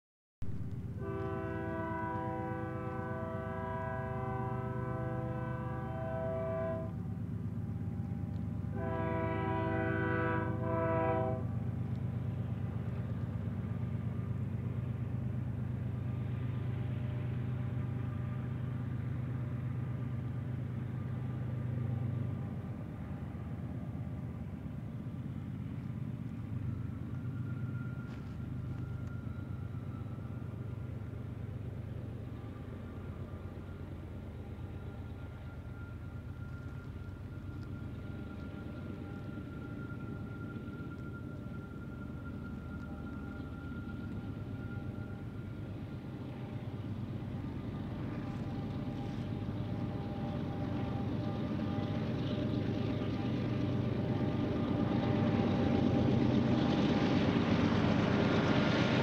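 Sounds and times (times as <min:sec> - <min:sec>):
diesel engines droning: 0:00.4 - 0:59.0
locomotive horn blasts: 0:01.0 - 0:07.0, 0:08.7 - 0:11.6.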